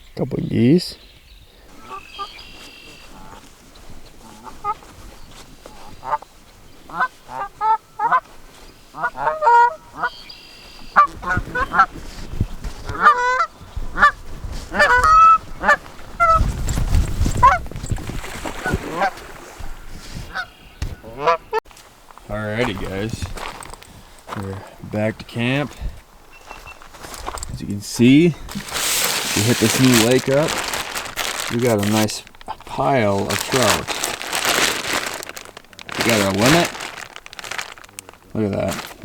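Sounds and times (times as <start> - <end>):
geese honking: 1.7 - 12.0, 12.9 - 16.4, 20.3 - 21.6, 28.0 - 38.7.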